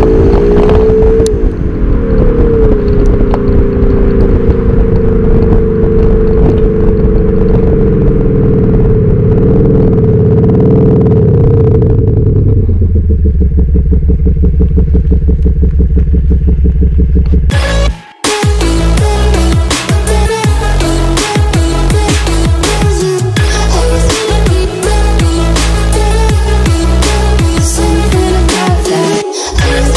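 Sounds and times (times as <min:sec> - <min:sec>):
car engine and exhaust note: 0:00.0 - 0:29.9.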